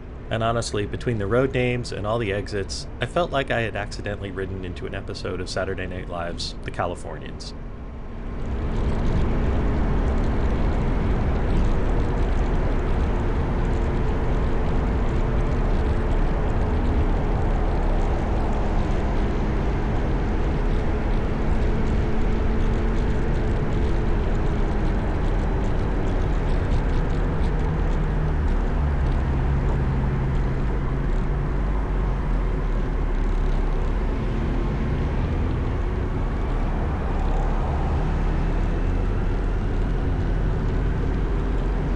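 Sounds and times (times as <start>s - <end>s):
wind and road noise: 0.0s - 41.9s
motorcycle engine: 7.6s - 41.9s.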